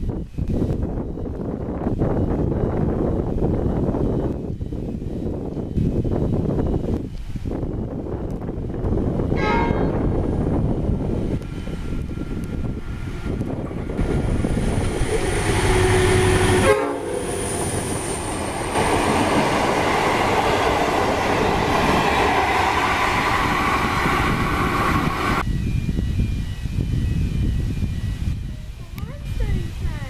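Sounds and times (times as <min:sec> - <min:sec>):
diesel locomotive passing: 0:06.2 - 0:25.5.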